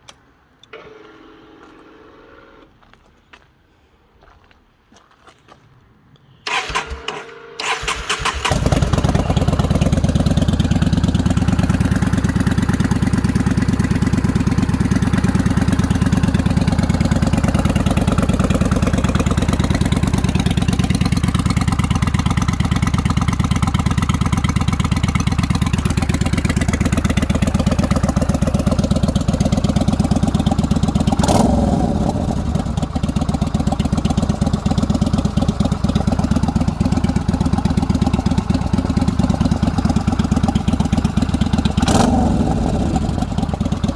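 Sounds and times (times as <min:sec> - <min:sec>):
electric starter cranking: 0:06.5 - 0:09.4
motorcycle engine idling: 0:06.5 - 0:43.9.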